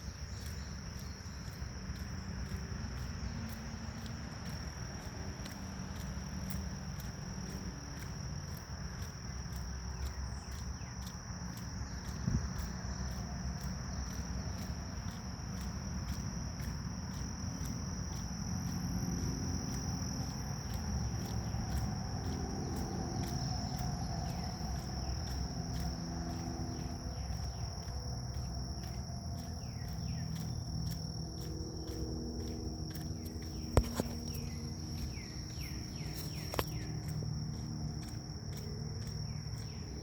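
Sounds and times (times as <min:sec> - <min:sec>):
bird chirping: 0:00.0 - 0:04.6, 0:22.6 - 0:40.0
grass insects trilling: 0:00.0 - 0:40.0
low wind rumble: 0:00.0 - 0:40.0.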